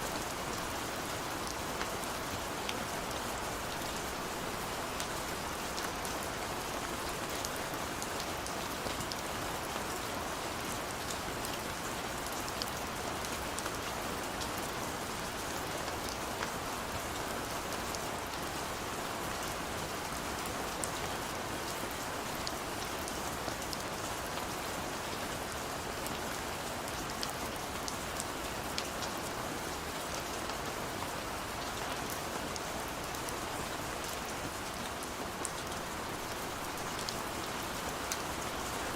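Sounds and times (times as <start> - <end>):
gentle rain on hard surfaces: 0.0 - 38.9
small raindrop ticks: 31.6 - 38.9.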